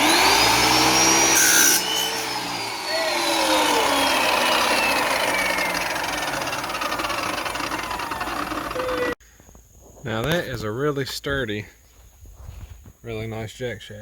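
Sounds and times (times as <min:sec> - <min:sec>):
power tool motor winding down: 0:00.0 - 0:09.2.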